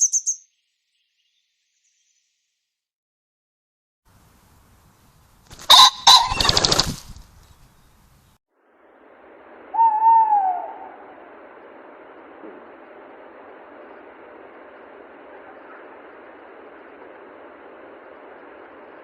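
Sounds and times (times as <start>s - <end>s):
wings fluttering: 5.2s - 8.2s
drawn-out bird call: 5.6s - 6.8s, 9.7s - 11.2s.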